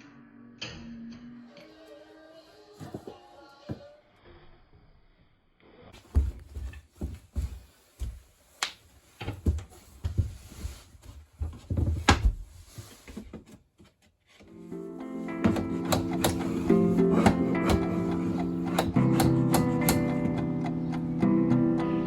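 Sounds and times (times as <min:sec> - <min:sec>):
knocks and thumps on wood: 0:15.4 - 0:20.4.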